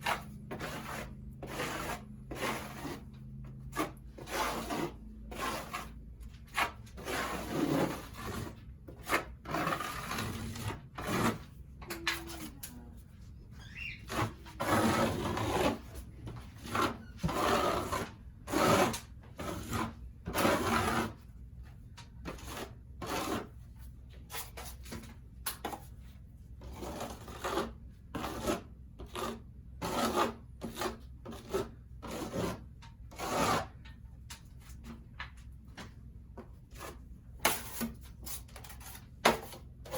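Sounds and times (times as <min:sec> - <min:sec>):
hand tool scraping ceiling: 0:00.0 - 0:12.6, 0:13.4 - 0:21.4, 0:22.2 - 0:35.4, 0:36.6 - 0:39.9
brief squeak: 0:13.6 - 0:14.1.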